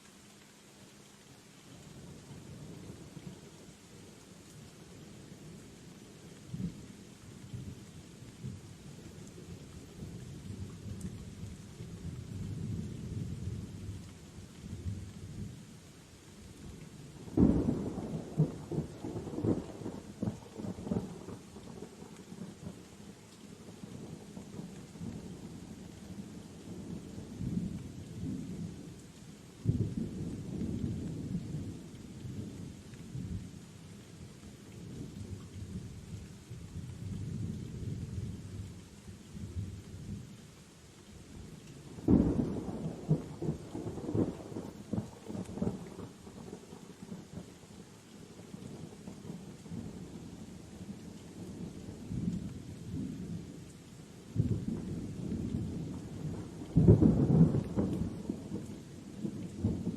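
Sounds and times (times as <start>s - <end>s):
steady rain: 0.0s - 59.9s
crackling thunderclap: 17.2s - 22.5s, 29.6s - 33.4s, 41.8s - 47.5s, 54.3s - 59.9s
thunder rumbling: 54.4s - 58.7s.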